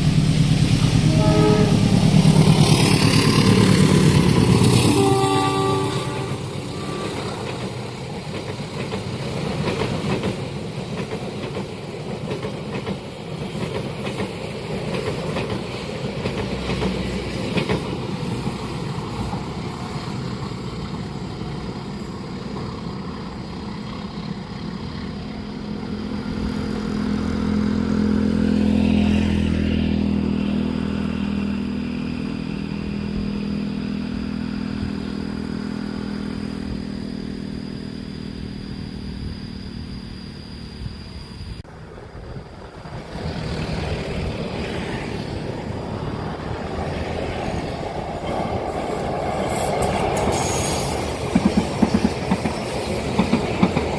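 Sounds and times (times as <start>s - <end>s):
train wheels clacking on rails: 0.0s - 24.0s, 42.4s - 53.9s.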